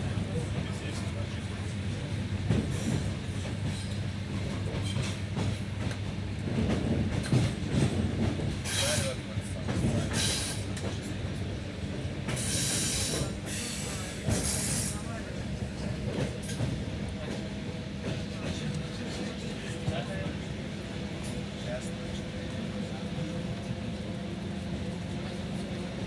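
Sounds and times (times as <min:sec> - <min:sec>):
train wheels clacking: 0:12.2 - 0:20.0.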